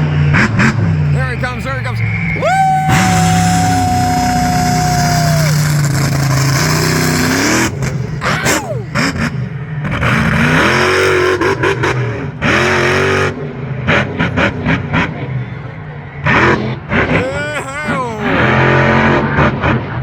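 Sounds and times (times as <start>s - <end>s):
truck engine revving: 2.0s - 17.2s.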